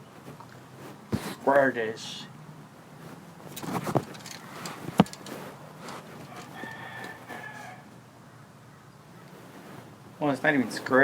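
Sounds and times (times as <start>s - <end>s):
rooster crowing faintly: 6.2s - 8.5s.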